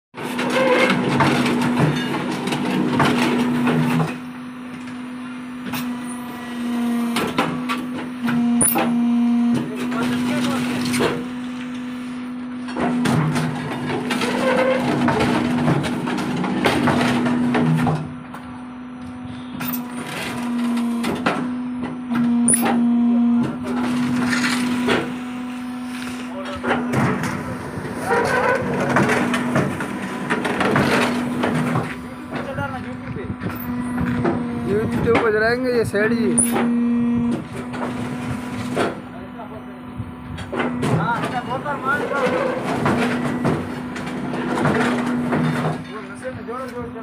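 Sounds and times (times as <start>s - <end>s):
sharp clanks and knocks: 0.2s - 4.2s, 12.6s - 18.4s, 26.5s - 35.5s, 36.3s - 39.0s, 40.4s - 46.9s
machine humming: 0.2s - 47.0s.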